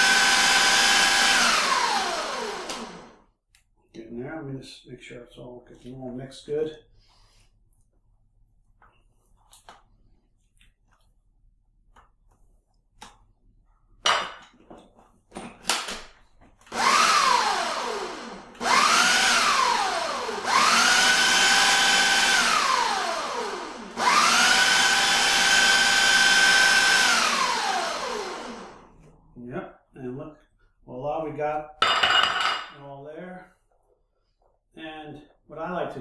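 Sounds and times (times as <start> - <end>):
blender motor pulsing: 0.0 - 3.2, 16.7 - 29.1.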